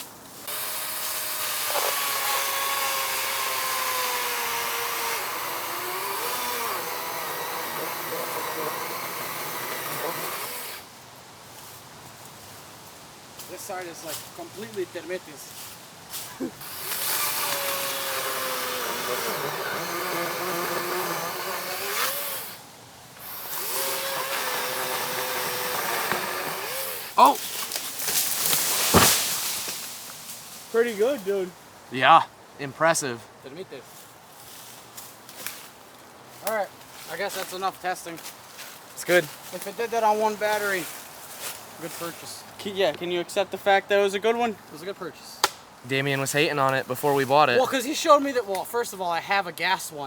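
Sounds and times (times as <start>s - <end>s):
chain cutting through wood: 0.4s - 10.8s, 16.6s - 22.6s, 23.2s - 29.8s
chainsaw motor whine: 0.4s - 10.9s, 16.6s - 22.6s, 23.2s - 27.2s.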